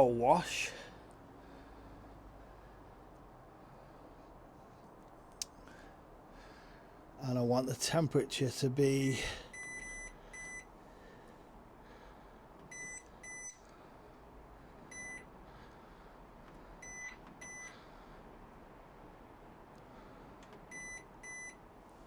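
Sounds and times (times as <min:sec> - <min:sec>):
washing machine button beeps: 0:09.6 - 0:10.6, 0:12.7 - 0:13.6, 0:14.9 - 0:15.2, 0:16.8 - 0:17.7, 0:20.7 - 0:21.6.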